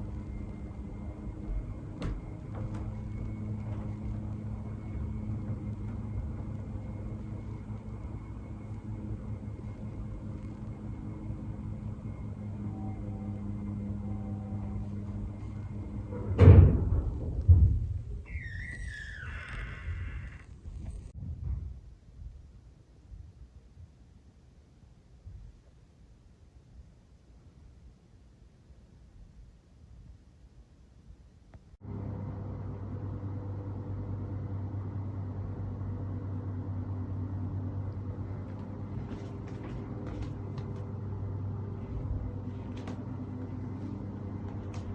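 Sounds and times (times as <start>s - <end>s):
low hum: 0.0s - 23.9s, 31.8s - 44.9s
heavy construction bang: 14.6s - 18.1s.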